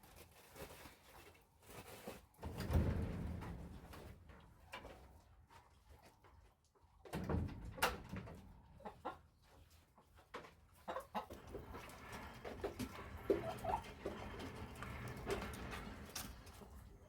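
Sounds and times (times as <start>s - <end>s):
chickens clucking: 8.8s - 9.7s, 10.4s - 14.2s.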